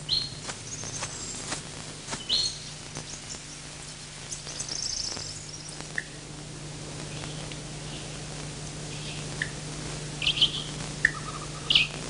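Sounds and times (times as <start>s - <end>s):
high bird chirps: 0.1s - 1.4s, 2.2s - 3.6s, 4.3s - 6.0s, 10.2s - 12.0s.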